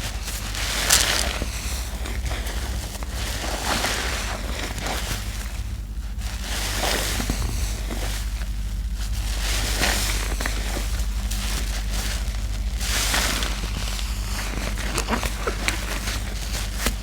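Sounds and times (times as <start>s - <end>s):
sponge squelching in soap lather: 0.3s - 2.4s.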